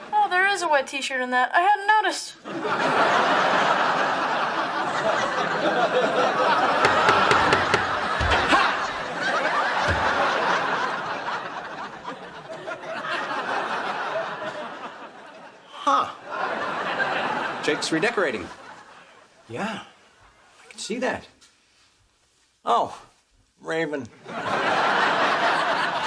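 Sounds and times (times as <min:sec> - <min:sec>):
studio audience laughing: 0:02.4 - 0:19.4, 0:24.2 - 0:26.0.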